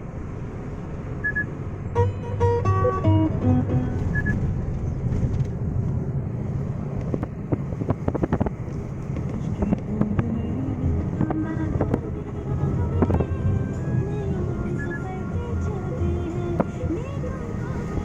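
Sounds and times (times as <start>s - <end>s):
car road and engine rumble: 0.0s - 18.0s
radio music: 9.3s - 18.0s.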